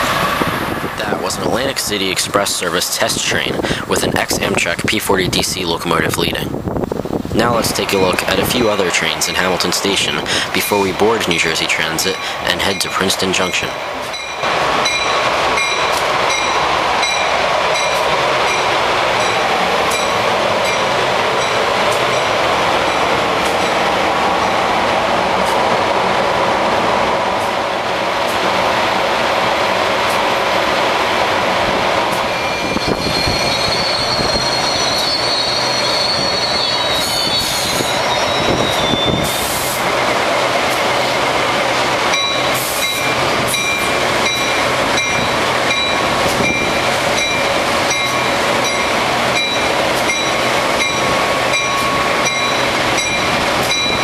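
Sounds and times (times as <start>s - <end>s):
train wheel and rail noise: 0.0s - 54.0s
high wheel squeal: 32.2s - 39.8s.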